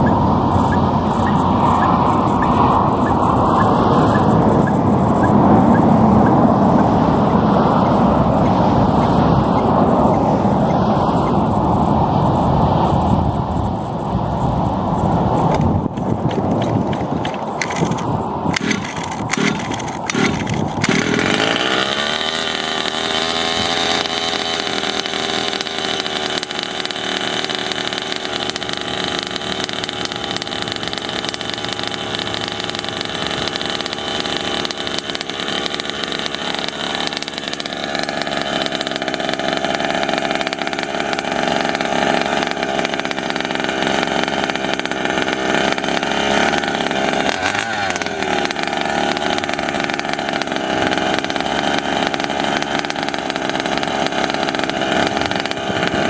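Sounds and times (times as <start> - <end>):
model truck engine revving: 0.0 - 56.0
clicks: 15.4 - 21.5.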